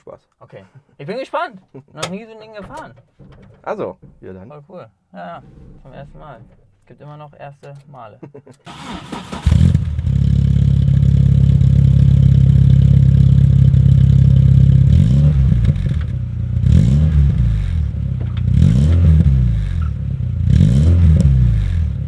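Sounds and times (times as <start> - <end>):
car engine idling and revving: 8.7 - 22.0.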